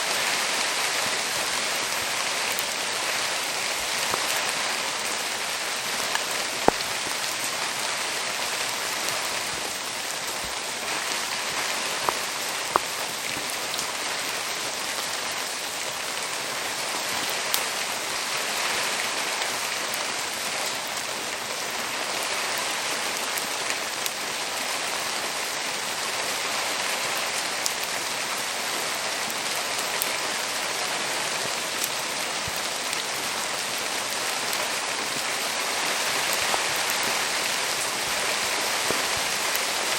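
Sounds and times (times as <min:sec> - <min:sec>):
steady rain hiss: 0:00.0 - 0:39.9
wood fire crackling pops: 0:01.4 - 0:14.1, 0:34.4 - 0:39.9.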